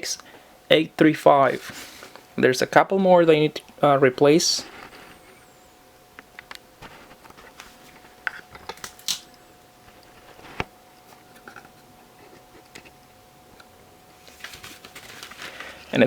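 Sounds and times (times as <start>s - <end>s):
faint steady tone: 0.0s - 6.3s.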